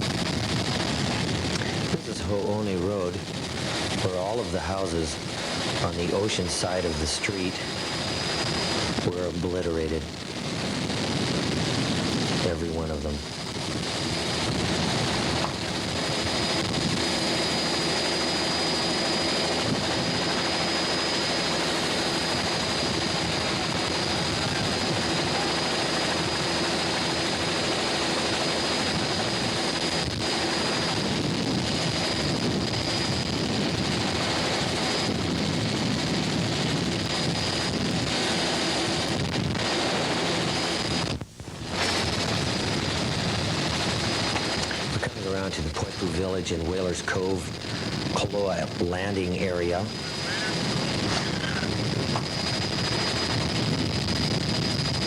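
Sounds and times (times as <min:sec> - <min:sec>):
thin high whine: 0:00.0 - 0:55.0
moving vehicle engine noise: 0:09.7 - 0:45.9.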